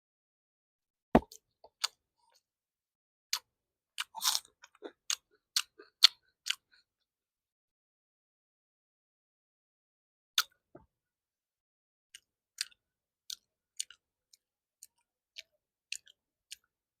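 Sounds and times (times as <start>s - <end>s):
food crunching while chewed: 4.0s - 6.7s.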